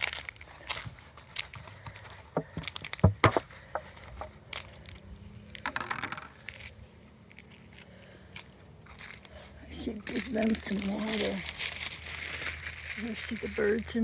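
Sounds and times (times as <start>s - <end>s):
peanuts rattling and clicking: 0.0s - 14.0s
loud knocks: 2.4s - 3.9s.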